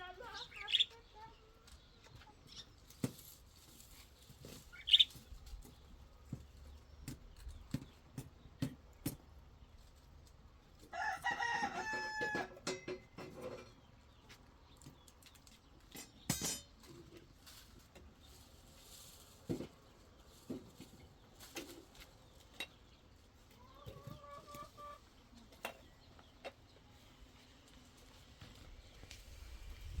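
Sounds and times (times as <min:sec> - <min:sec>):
rooster crowing: 0:10.9 - 0:12.6.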